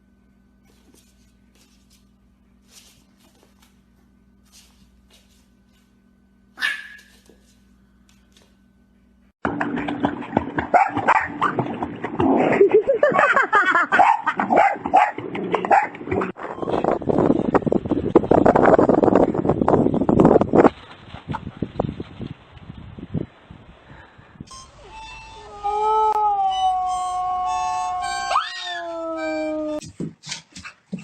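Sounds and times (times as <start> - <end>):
faint steady hum: 0.0 - 9.4
dog barking and yapping: 6.6 - 7.3, 10.8 - 11.5, 13.9 - 16.3.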